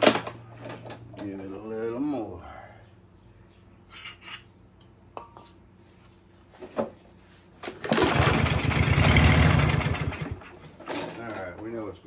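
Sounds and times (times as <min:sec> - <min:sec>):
mower engine running: 0:07.6 - 0:11.4.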